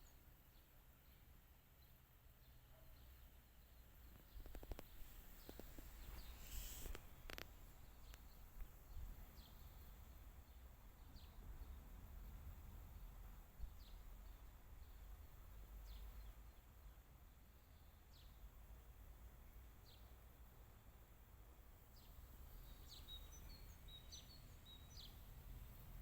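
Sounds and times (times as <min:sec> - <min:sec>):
bird chirping: 0:00.0 - 0:07.0, 0:22.0 - 0:25.9.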